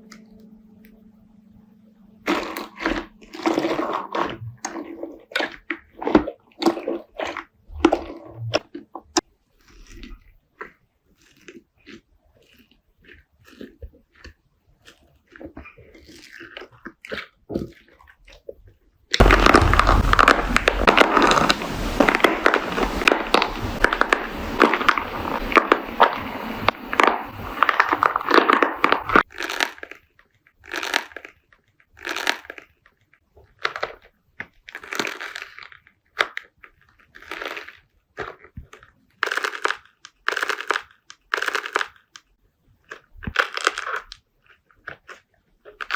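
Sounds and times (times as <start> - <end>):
slime crackling: 2.2 - 11.6, 19.2 - 42.2
slime squishing: 2.2 - 45.9.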